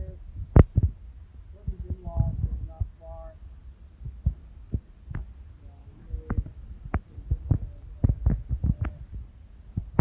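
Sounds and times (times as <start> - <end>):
sharp knocks and low thumps: 0.4 - 1.0, 1.6 - 3.0, 4.0 - 5.3, 6.1 - 10.0.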